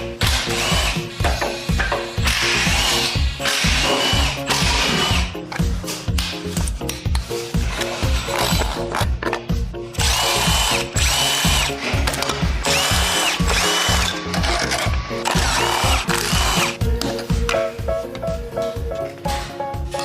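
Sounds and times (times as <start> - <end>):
music beat: 0.0 - 20.0
power drill whining: 2.2 - 5.4, 10.0 - 16.8.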